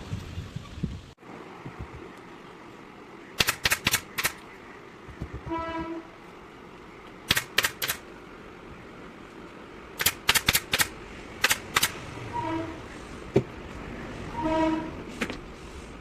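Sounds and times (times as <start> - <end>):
staple gun firing: 3.4 - 4.4, 7.3 - 8.0, 10.0 - 12.0.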